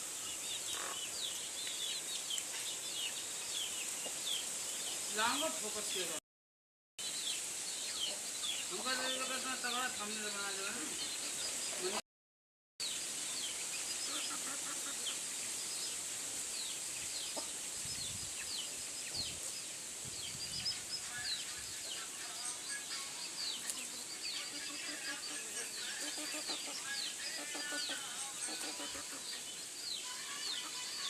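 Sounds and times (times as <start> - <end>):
steady hiss: 0.0 - 6.2, 7.0 - 12.0, 12.8 - 31.0
chicks peeping: 0.2 - 4.5, 20.2 - 31.0.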